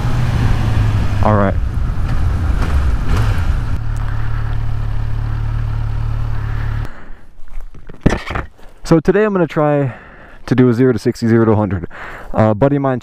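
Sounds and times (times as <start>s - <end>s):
motorcycle engine idling: 0.8s - 6.9s.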